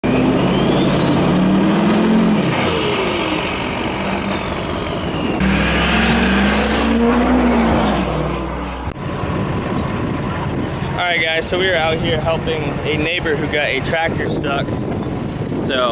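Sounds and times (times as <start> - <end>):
diesel truck engine revving: 0.0 - 15.7
turbo whistle: 0.1 - 7.7.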